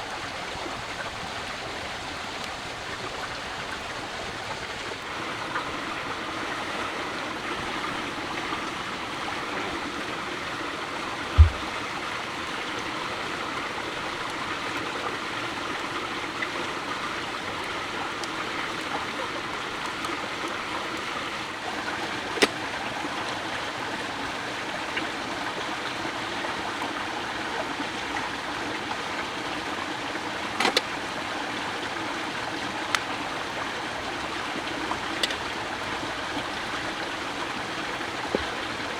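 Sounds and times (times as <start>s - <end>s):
running water rushing: 0.0s - 38.9s
low thump: 11.4s - 11.8s.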